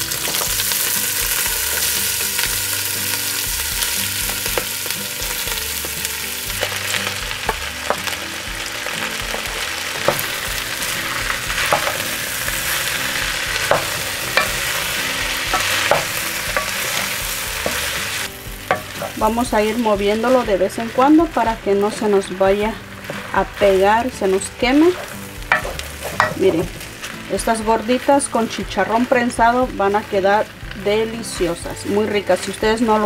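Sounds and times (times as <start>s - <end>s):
meat sizzling in hot oil: 0.0s - 33.0s
spoon knocking and scraping pot: 11.5s - 12.2s, 13.5s - 14.8s, 15.4s - 18.0s, 18.6s - 19.2s, 24.3s - 26.9s.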